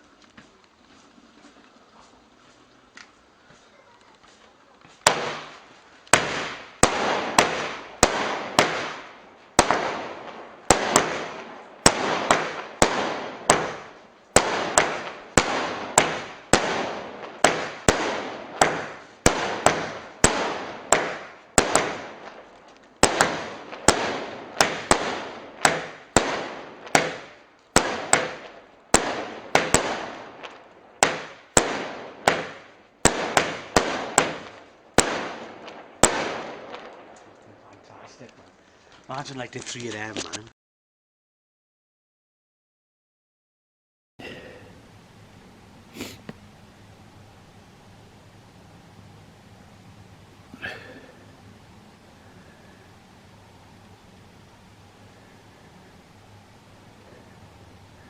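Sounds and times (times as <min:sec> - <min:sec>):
firework barrage bangs: 0:04.8 - 0:38.4.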